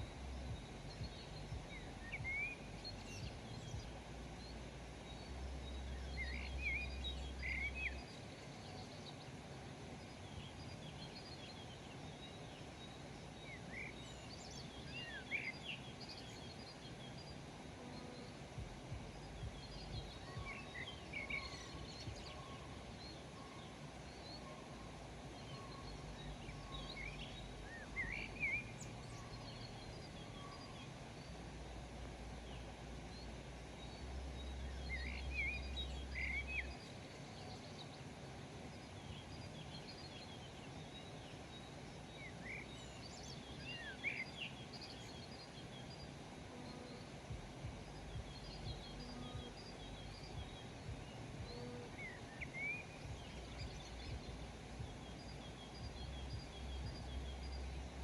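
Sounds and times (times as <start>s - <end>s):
low rumble: 0.0s - 4.7s, 18.6s - 20.5s, 47.3s - 52.0s, 53.0s - 58.0s
background hiss: 0.0s - 58.0s
small birds chirping: 0.0s - 58.0s.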